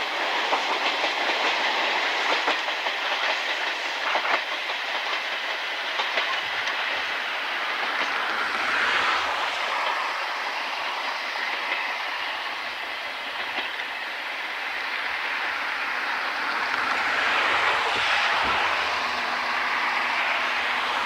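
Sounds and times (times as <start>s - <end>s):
train wheels clacking on rails: 0.0s - 21.0s
wind blowing on microphone: 16.2s - 21.0s.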